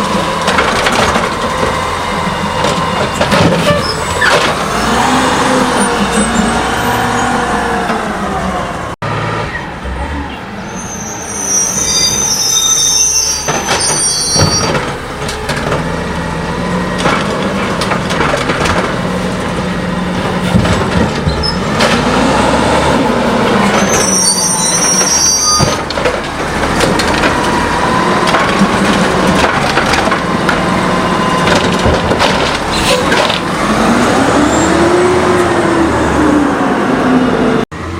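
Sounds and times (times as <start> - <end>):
high metallic squeals: 2.1 - 4.4, 9.4 - 14.8, 23.6 - 25.8
garbage truck engine running: 24.8 - 37.9.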